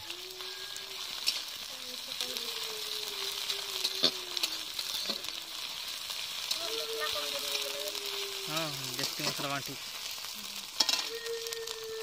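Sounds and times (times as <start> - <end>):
food sizzling in hot oil: 0.0 - 12.0
metal spatula scraping a pan: 10.8 - 11.1.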